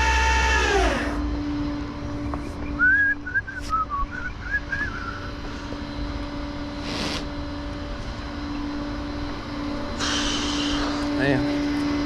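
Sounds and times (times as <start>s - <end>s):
vehicle engine humming: 0.0s - 12.0s
high whistled chirps: 2.4s - 5.4s
brief hiss: 10.0s - 11.1s.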